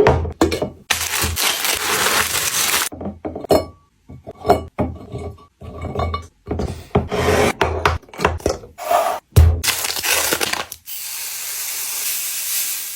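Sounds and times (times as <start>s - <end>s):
packages scraping: 0.9s - 2.9s.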